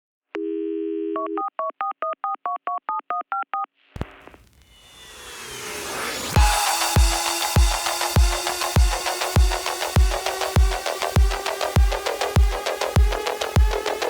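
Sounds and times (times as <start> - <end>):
electronic music with deep beats: 6.0 - 14.0.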